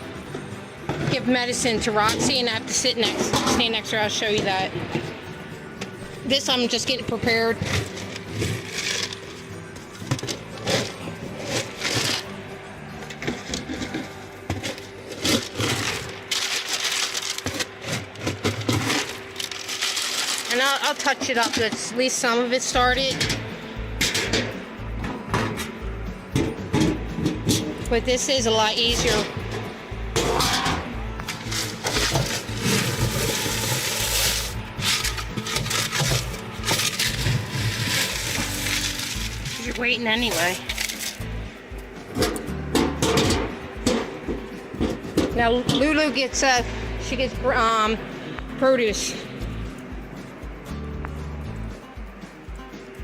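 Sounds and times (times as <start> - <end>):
rubbing and scraping: 7.3 - 22.0, 31.3 - 41.5
rustling of objects handled: 14.6 - 21.8, 31.3 - 41.4.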